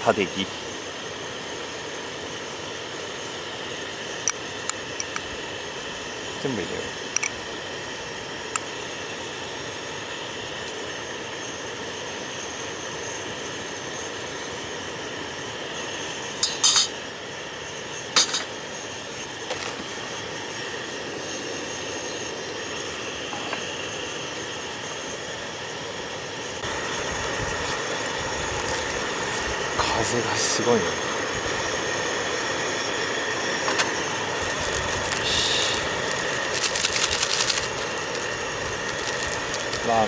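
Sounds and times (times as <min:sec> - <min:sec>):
utensils clinking on pot: 0:16.4 - 0:17.0, 0:18.2 - 0:18.6.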